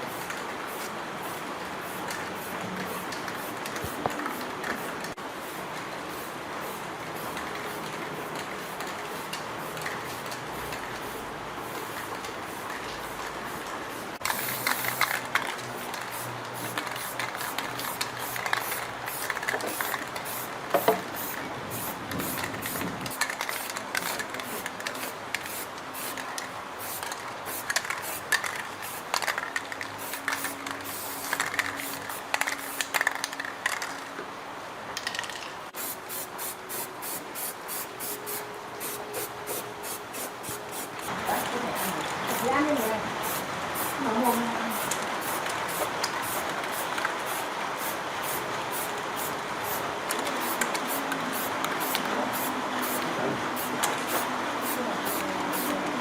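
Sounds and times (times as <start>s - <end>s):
spray hissing: 35.8s - 49.8s, 50.4s - 55.9s.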